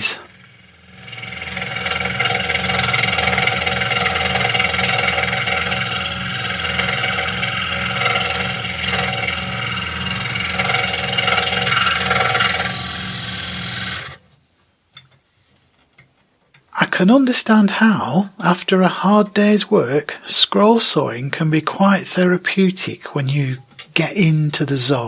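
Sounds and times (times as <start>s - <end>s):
scroll saw cutting wood: 0.0s - 14.2s.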